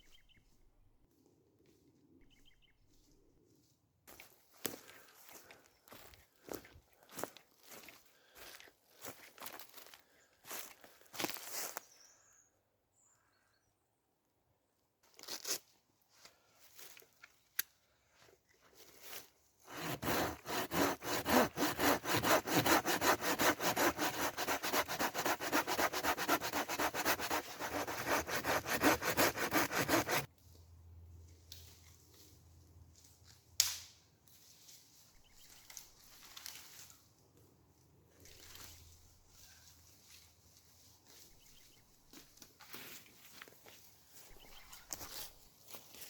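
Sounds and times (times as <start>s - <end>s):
hand saw cutting wood: 19.7s - 30.3s.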